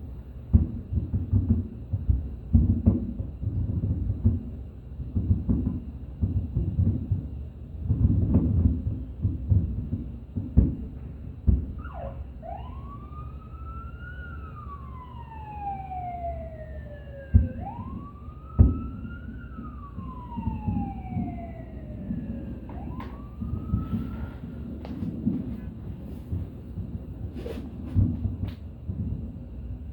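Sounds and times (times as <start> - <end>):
distant firework bursts rumbling: 0.0 - 29.9
loud firework booms: 0.5 - 12.4, 17.3 - 29.4
emergency vehicle siren wailing: 11.8 - 25.4.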